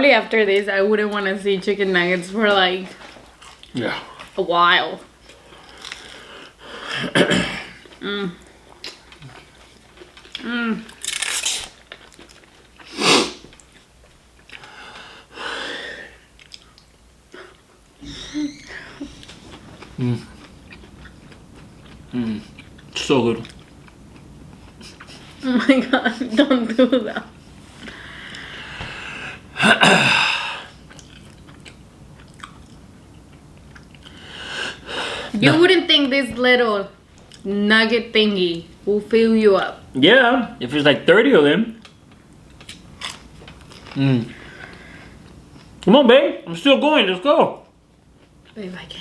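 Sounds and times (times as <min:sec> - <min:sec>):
person chewing food: 0:03.0 - 0:04.4, 0:05.2 - 0:06.2, 0:07.8 - 0:14.8, 0:16.3 - 0:17.6, 0:19.0 - 0:25.5, 0:30.7 - 0:34.3, 0:41.8 - 0:45.8.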